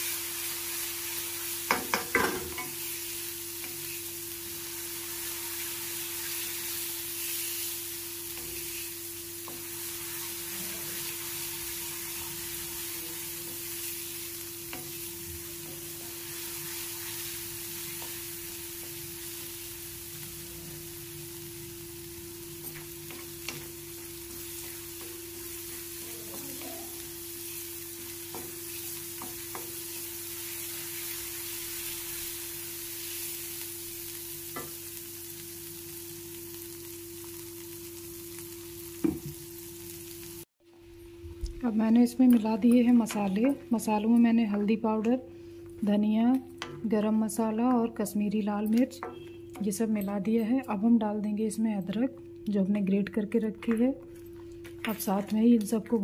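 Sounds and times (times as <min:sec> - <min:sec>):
paste sizzling in hot oil: 0:00.0 - 0:40.5.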